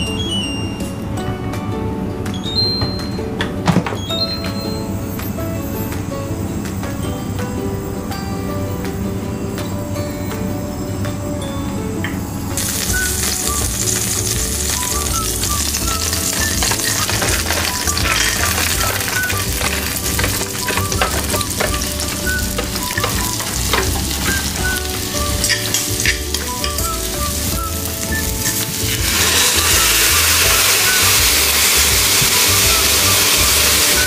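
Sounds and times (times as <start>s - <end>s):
soft background music: 0.0s - 34.0s
food sizzling in hot oil: 12.6s - 34.0s.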